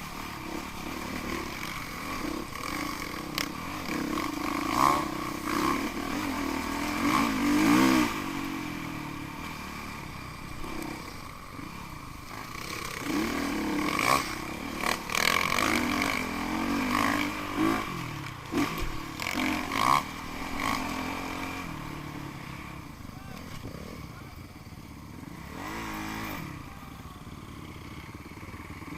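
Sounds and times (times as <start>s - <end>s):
motorcycle engines revving: 0.0s - 28.9s.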